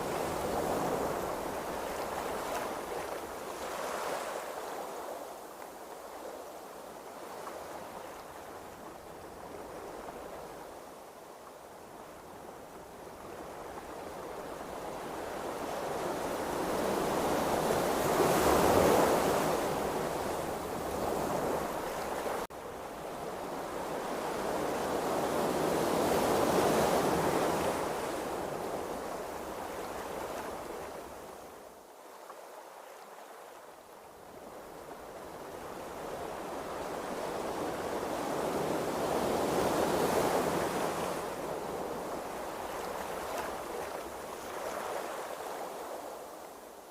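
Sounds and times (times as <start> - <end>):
ocean waves washing: 13.3 - 46.9.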